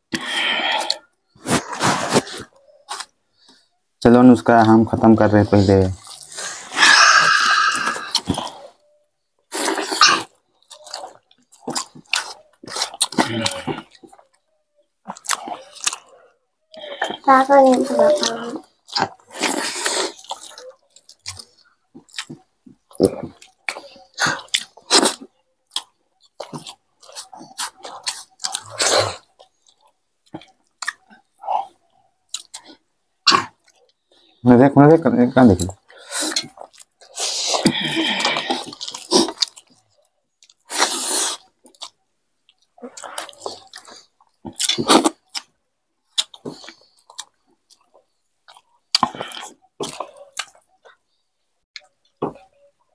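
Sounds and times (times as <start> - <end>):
people chewing and eating: 0.0 - 52.9
breathy rush: 6.4 - 8.3.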